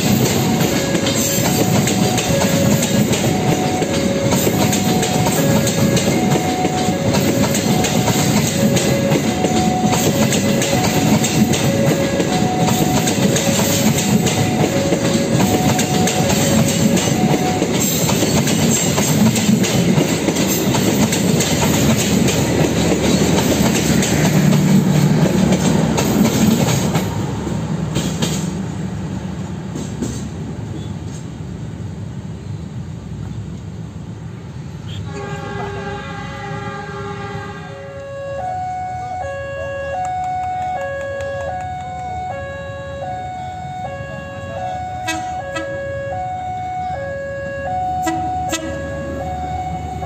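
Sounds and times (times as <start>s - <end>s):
multi-tone signal: 0.0s - 18.5s, 37.7s - 50.0s
train wheels clattering over joints: 0.0s - 28.7s.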